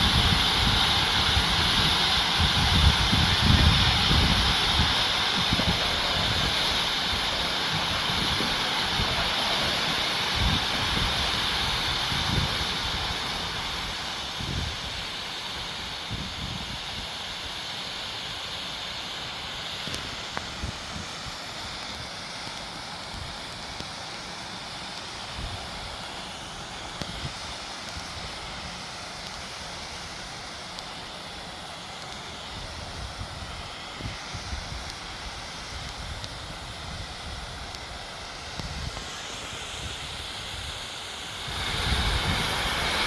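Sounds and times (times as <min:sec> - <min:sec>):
wind buffeting the microphone: 0:00.0 - 0:15.1, 0:16.0 - 0:17.1, 0:38.5 - 0:39.1, 0:41.4 - 0:43.0
waterfall water rushing: 0:00.0 - 0:43.0.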